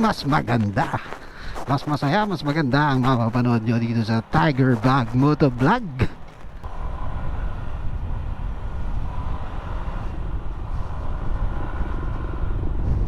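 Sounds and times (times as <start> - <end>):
wind buffeting a microphone: 0.0 - 13.0.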